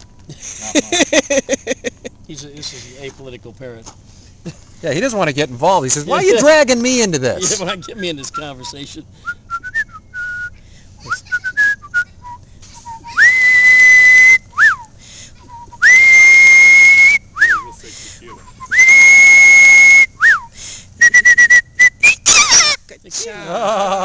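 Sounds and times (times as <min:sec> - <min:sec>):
parrot whistling: 0:18.4 - 0:22.8.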